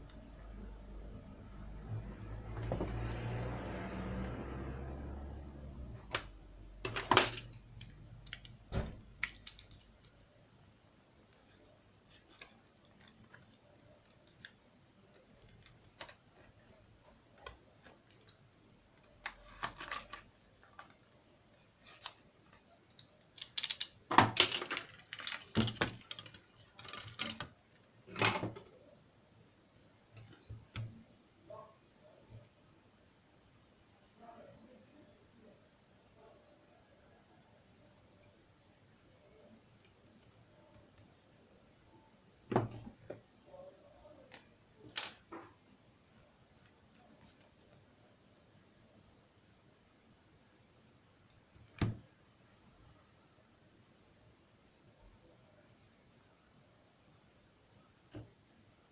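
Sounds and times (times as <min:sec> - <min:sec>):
tools and plastic parts clicking: 0:06.8 - 0:10.2, 0:19.0 - 0:21.0, 0:21.9 - 0:28.7.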